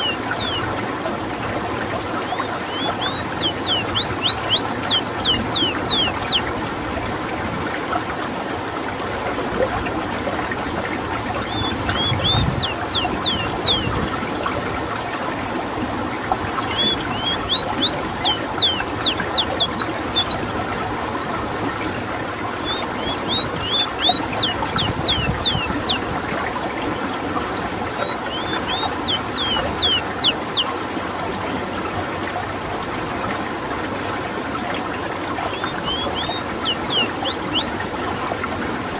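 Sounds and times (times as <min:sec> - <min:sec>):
bird singing whistled notes: 0:00.0 - 0:00.7, 0:02.2 - 0:06.5, 0:11.4 - 0:14.0, 0:16.6 - 0:20.6, 0:22.6 - 0:26.0, 0:28.0 - 0:30.7, 0:35.5 - 0:37.8.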